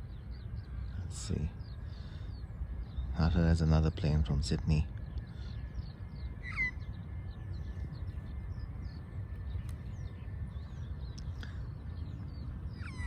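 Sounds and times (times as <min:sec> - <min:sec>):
birds chirping: 0:00.0 - 0:13.0
low rumble: 0:00.0 - 0:13.0
downward-sliding bird calls: 0:06.4 - 0:06.8, 0:12.7 - 0:13.0.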